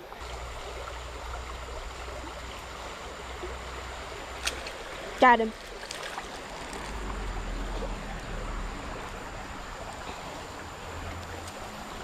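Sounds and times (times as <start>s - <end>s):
creek water rushing: 0.0s - 12.0s
low rumble: 5.5s - 12.0s.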